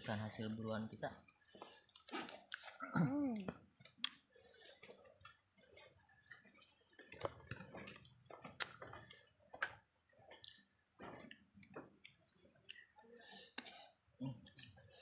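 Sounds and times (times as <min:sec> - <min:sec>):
wet mouth clicks and smacks: 0:01.3 - 0:02.8, 0:03.4 - 0:10.6.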